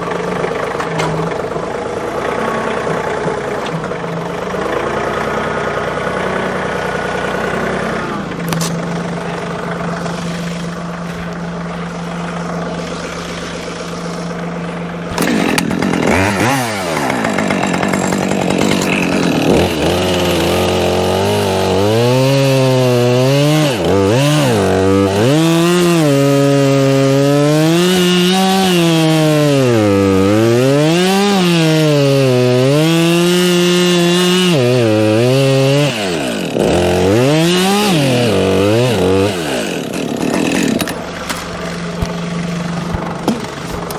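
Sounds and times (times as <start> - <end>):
chainsaw cutting wood: 0.0 - 43.9
small engine running: 0.0 - 43.9.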